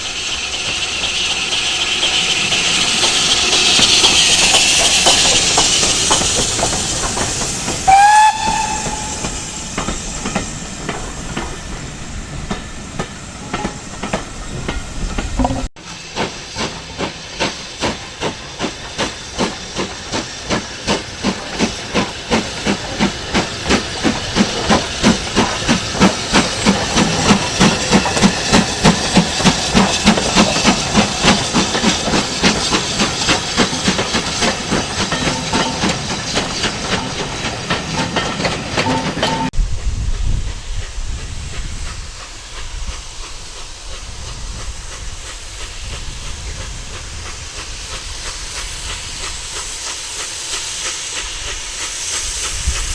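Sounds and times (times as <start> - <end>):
steam hissing: 0.0 - 52.9
steam locomotive chuffing: 0.0 - 52.9
steam whistle blast: 7.9 - 9.6.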